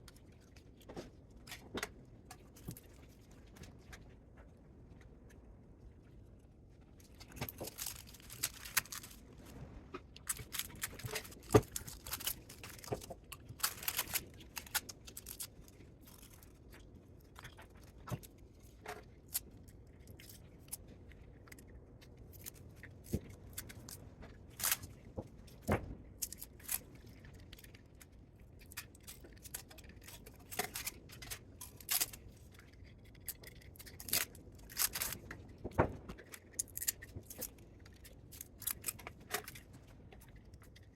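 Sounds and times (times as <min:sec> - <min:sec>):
metal parts clicking and scraping: 0:10.3 - 0:16.6.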